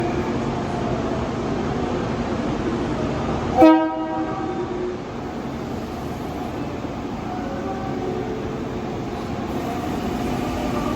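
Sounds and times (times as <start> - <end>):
train horn blast: 3.6 - 4.8
station running noise: 5.0 - 10.9.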